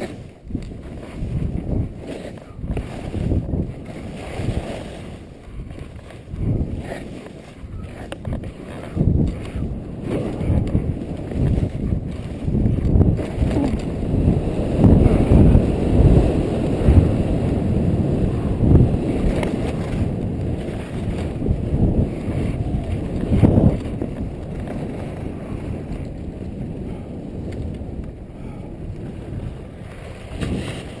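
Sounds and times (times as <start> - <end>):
wind rumbling on microphone: 0.0 - 31.0
skis hissing over snow: 1.9 - 6.2.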